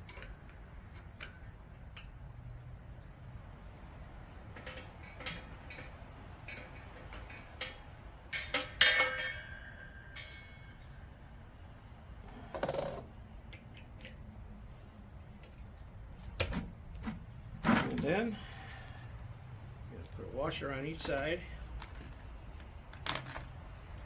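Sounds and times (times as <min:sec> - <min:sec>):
metal parts clicking and clinking: 0:00.0 - 0:02.4, 0:04.5 - 0:11.0, 0:21.0 - 0:24.0
ringing metal clinks: 0:04.6 - 0:11.1.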